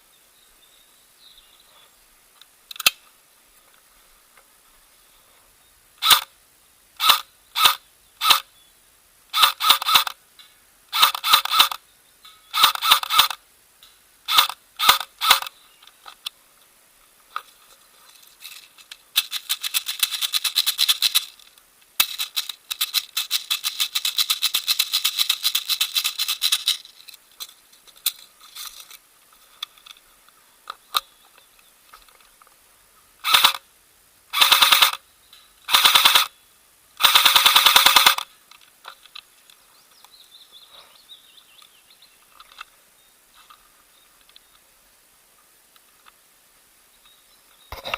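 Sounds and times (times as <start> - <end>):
airsoft gun firing bursts: 9.4 - 10.1, 11.0 - 11.8, 14.3 - 15.5, 33.3 - 33.6, 34.4 - 35.0, 35.7 - 36.3, 37.0 - 38.3.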